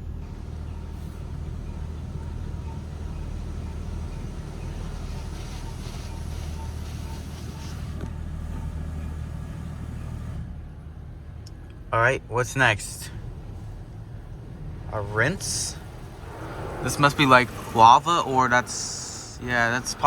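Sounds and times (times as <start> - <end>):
steady low hum: 0.0 - 20.0
spray hissing against car: 4.7 - 8.0.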